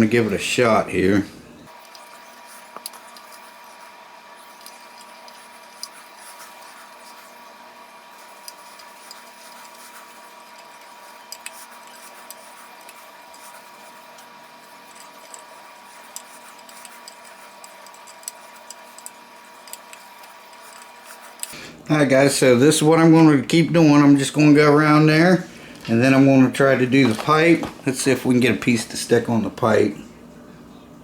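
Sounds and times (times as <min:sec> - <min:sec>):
faint steady hum: 0:00.0 - 0:31.0
soldering clicks and crackles: 0:01.7 - 0:21.6.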